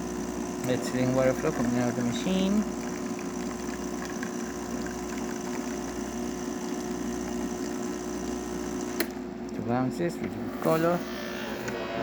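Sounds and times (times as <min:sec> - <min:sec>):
espresso machine pump running: 0:00.0 - 0:09.5.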